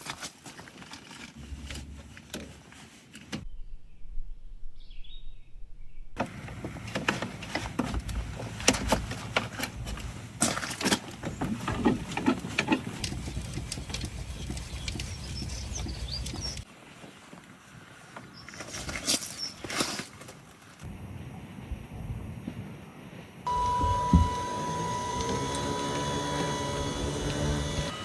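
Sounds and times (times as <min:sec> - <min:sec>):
bird chirping: 0:03.4 - 0:06.2, 0:13.1 - 0:16.6.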